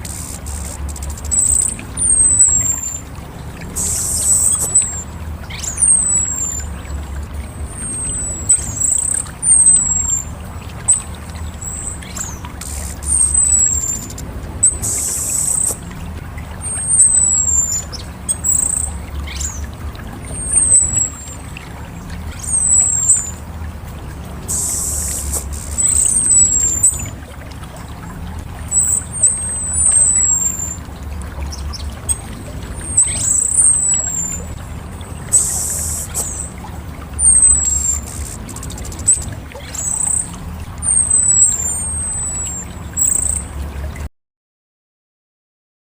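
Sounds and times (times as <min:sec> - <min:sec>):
thrush whistles: 0:00.0 - 0:06.7, 0:07.4 - 0:15.8, 0:24.4 - 0:27.2, 0:35.2 - 0:36.6
steady low rumble: 0:00.0 - 0:41.2
harsh hissy bursts: 0:24.5 - 0:25.8.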